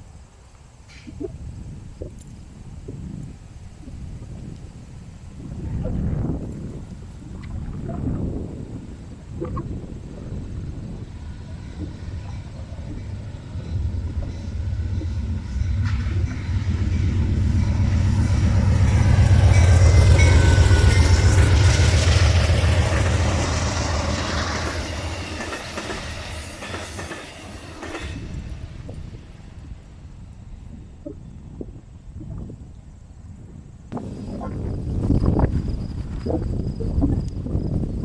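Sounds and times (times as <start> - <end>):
train rumbling past: 9.8 - 31.0.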